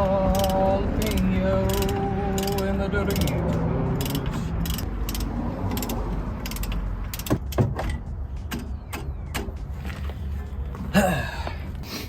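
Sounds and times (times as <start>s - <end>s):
socket ratchet clicking: 0.2s - 7.6s.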